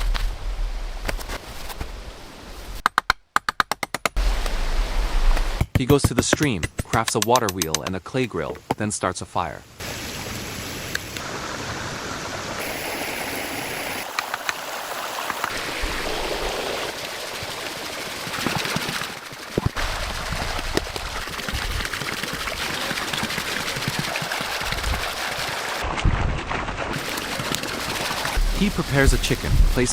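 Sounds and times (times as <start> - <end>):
stream water running: 6.9 - 26.1, 26.8 - 29.9.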